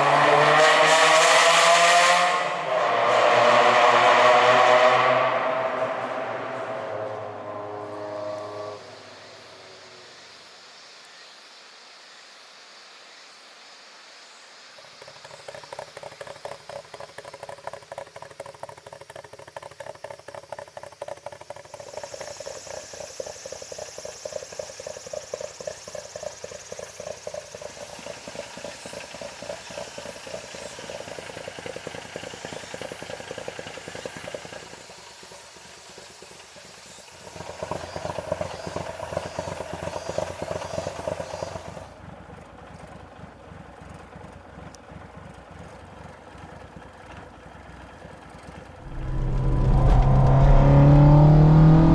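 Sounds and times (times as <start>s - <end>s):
car engine running: 15.1s - 51.9s.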